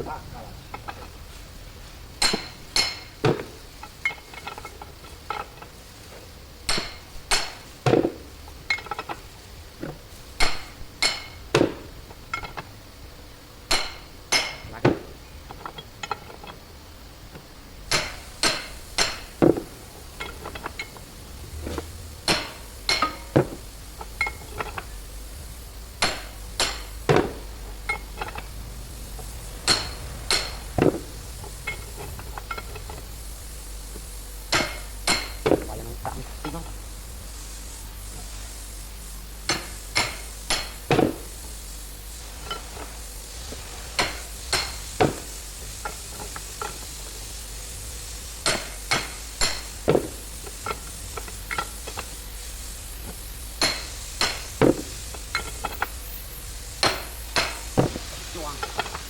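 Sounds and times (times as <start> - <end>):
hammer blows on steel: 29.2 - 32.6.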